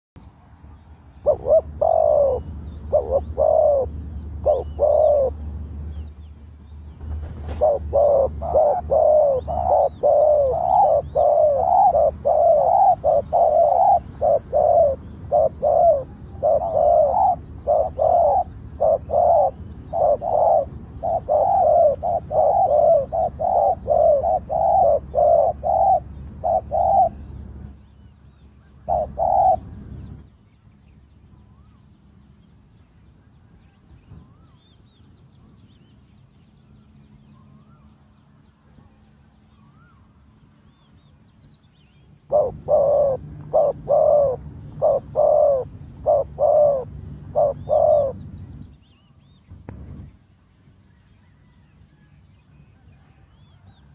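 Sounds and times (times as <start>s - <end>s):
doves cooing: 1.2s - 5.6s, 7.1s - 27.8s, 28.8s - 30.2s, 42.3s - 48.7s.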